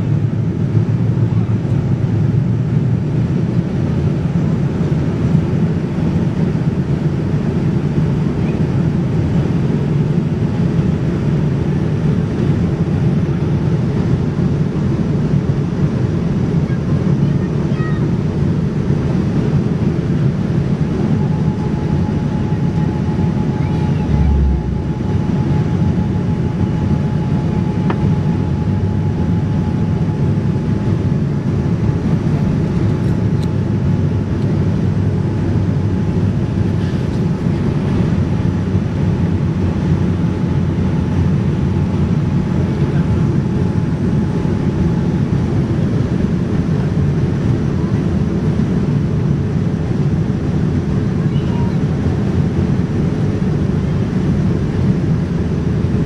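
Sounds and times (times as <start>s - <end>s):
airliner cabin engine rumble: 0.0s - 56.0s
faint steady whine: 19.2s - 47.8s
low thump: 24.1s - 25.2s.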